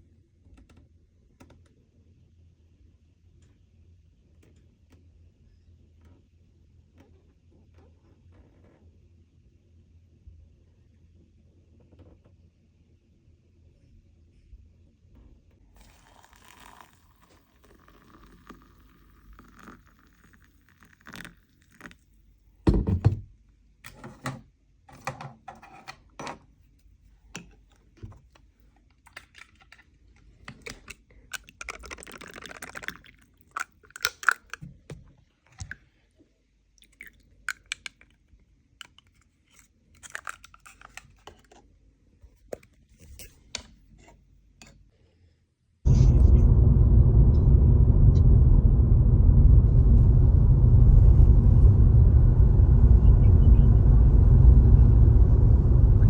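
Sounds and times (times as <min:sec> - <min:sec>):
loud thud: 0:45.9 - 0:56.0.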